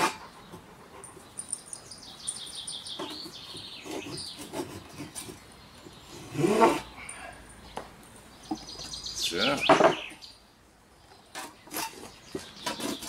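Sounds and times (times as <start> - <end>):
hand saw scraping wood: 0.0 - 0.8, 3.0 - 6.9, 11.3 - 13.0
small birds chirping: 0.2 - 13.0.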